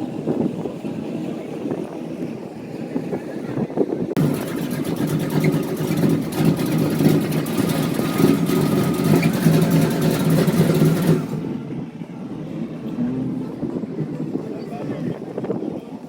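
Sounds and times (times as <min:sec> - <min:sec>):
vehicle engine running: 0:04.2 - 0:14.5.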